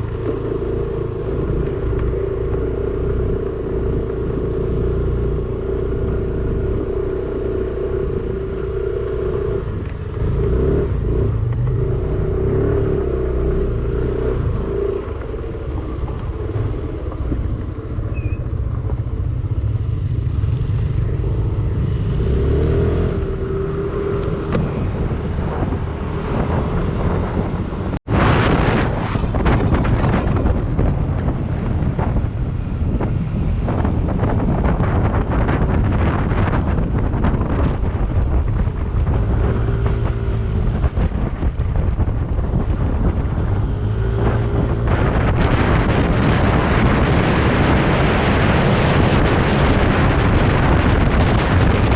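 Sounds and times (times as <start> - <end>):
low rumble: 0.0 - 51.9
scooter engine droning: 0.0 - 51.9
rough rushing noise with rattles: 24.4 - 51.9.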